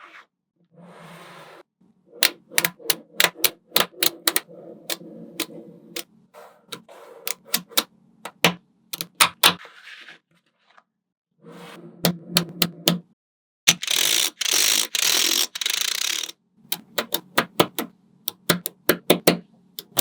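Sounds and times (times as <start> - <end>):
magnetic balls snapping together: 2.2 - 5.5, 7.3 - 9.6, 12.1 - 13.0, 13.7 - 20.0.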